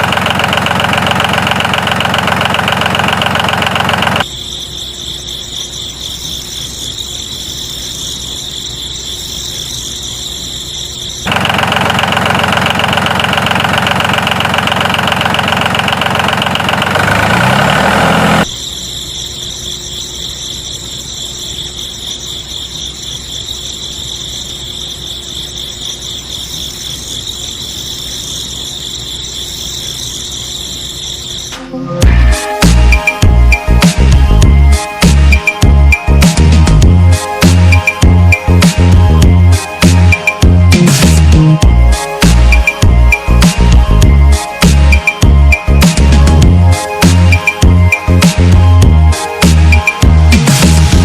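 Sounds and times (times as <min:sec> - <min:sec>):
loud buzzy motor: 0:00.0 - 0:04.3, 0:11.2 - 0:18.5.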